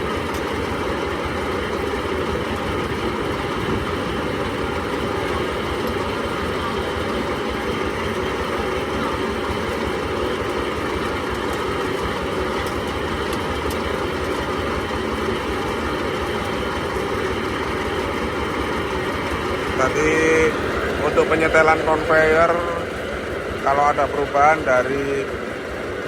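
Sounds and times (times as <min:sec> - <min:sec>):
corn sheller machine running: 0:00.0 - 0:26.0.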